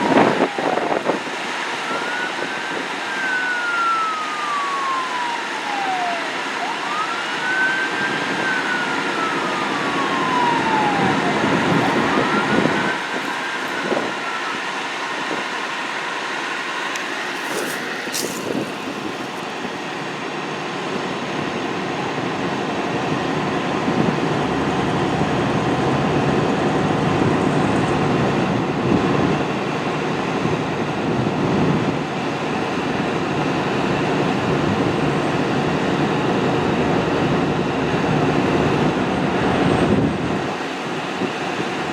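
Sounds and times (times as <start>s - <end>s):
engine and road noise: 0.0s - 41.9s
fire engine siren wailing: 0.0s - 41.9s.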